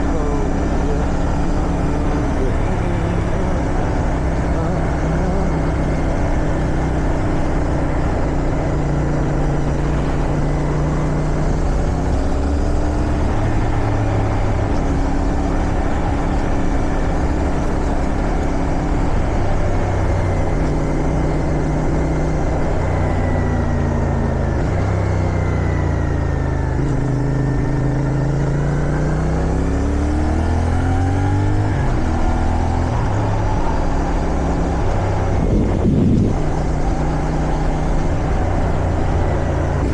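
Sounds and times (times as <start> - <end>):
motorcycle engine: 0.0 - 39.9
wind rushing over microphone: 31.2 - 39.9.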